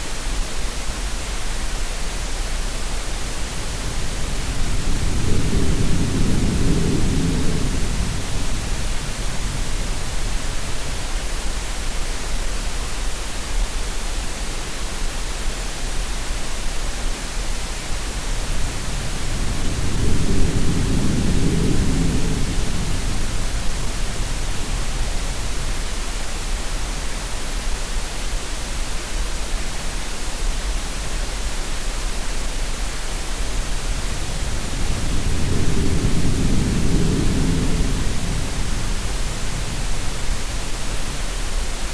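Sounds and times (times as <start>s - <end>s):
steady green-noise hiss: 0.0s - 41.9s
sea waves surging: 33.6s - 41.2s.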